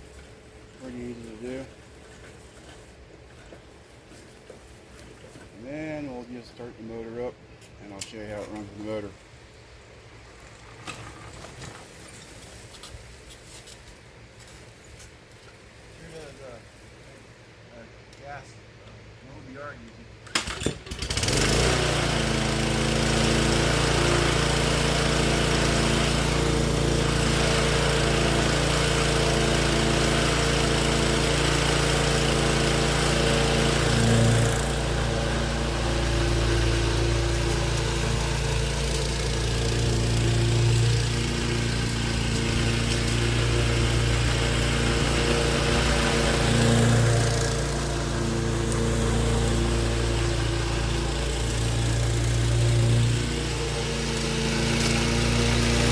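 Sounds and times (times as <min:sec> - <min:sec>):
lawnmower engine running: 0:20.3 - 0:55.9.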